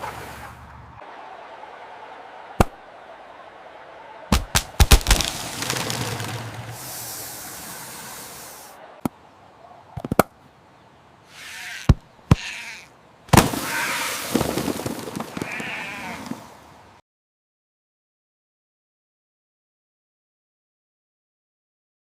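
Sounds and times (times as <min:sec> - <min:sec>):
sharp cracks and pops: 0:04.3 - 0:06.7
wavering bleating call: 0:11.2 - 0:14.4, 0:15.3 - 0:16.5.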